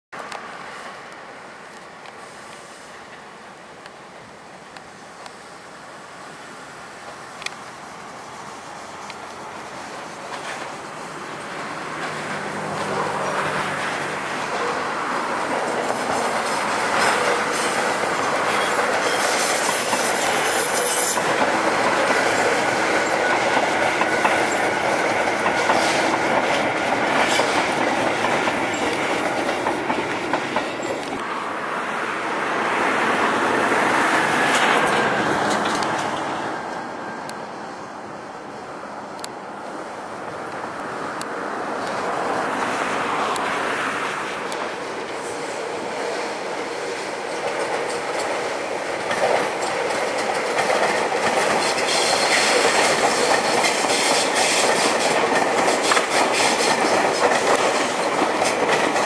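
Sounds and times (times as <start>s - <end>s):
train wheels rumbling: 4.7s - 38.6s, 39.7s - 59.0s
clicking over rail joints: 9.0s - 31.2s, 34.4s - 37.4s, 47.2s - 59.0s
high wheel squeal: 16.1s - 24.9s, 51.3s - 58.0s.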